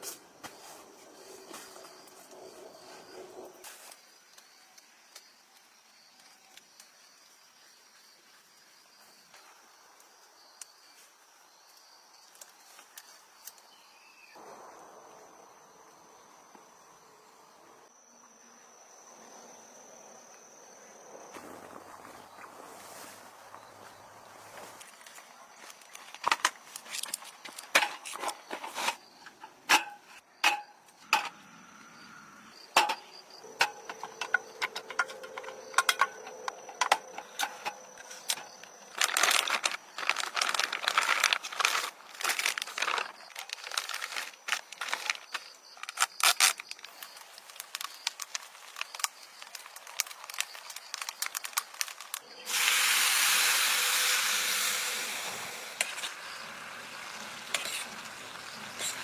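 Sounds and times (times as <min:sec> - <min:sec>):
food sizzling in hot oil: 0:52.3 - 0:59.0.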